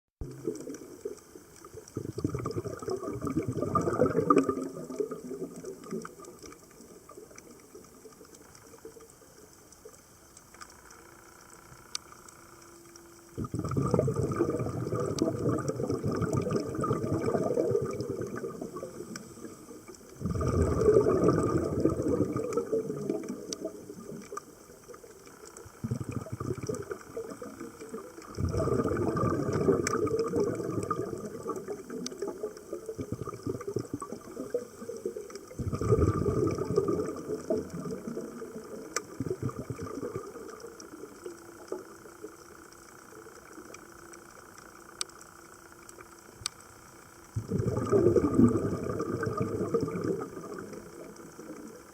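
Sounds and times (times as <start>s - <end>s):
faint sharp clicks: 0.2s - 2.2s, 4.3s - 13.4s, 17.9s - 20.2s, 22.4s - 25.8s, 33.6s - 35.6s, 37.1s - 39.2s, 39.8s - 47.4s
underwater bubbles bursting: 0.2s - 10.0s, 13.4s - 42.4s, 47.4s - 51.9s.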